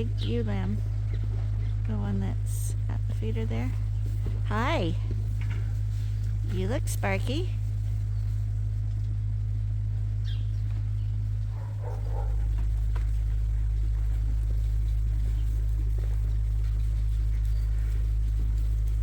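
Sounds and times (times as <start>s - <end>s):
machine humming: 0.0s - 19.0s.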